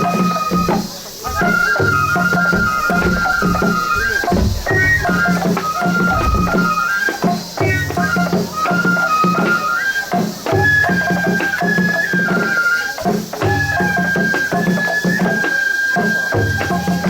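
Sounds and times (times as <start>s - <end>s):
drum beats: 0.0s - 12.1s.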